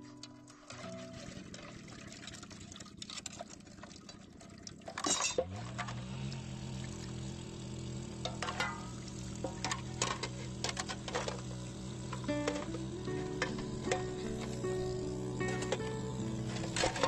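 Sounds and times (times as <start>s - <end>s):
liquid pouring: 0.6s - 7.3s
dishes clinking: 5.0s - 5.5s
low drone: 5.7s - 17.0s.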